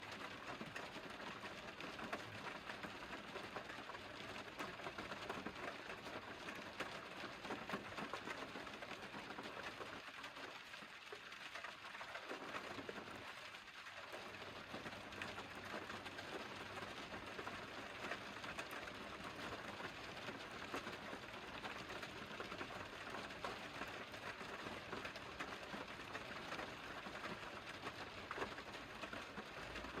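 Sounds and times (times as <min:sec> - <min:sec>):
steady rain: 0:00.0 - 0:30.0.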